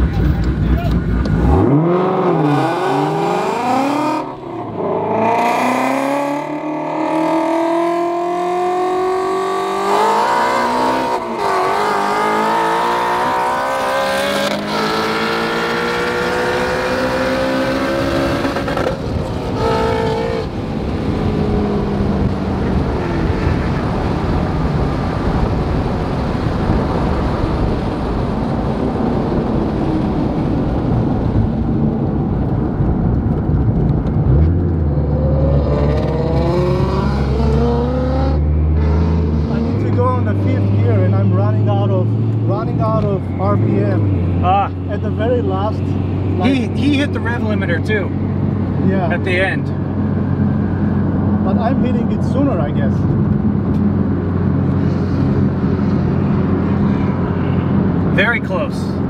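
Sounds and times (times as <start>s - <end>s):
car engine revving at full throttle: 0.0s - 59.0s.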